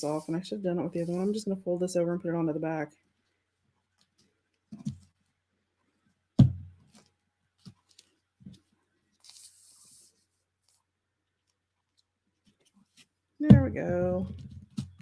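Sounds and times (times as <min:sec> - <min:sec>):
paper rustling: 0:01.0 - 0:01.4, 0:06.9 - 0:10.8
paper pressed down thumps: 0:06.4 - 0:07.0.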